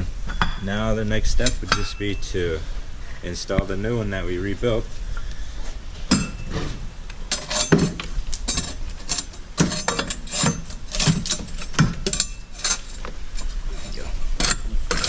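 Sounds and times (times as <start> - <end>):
metal tools clanking: 1.2 - 2.5, 6.1 - 15.0.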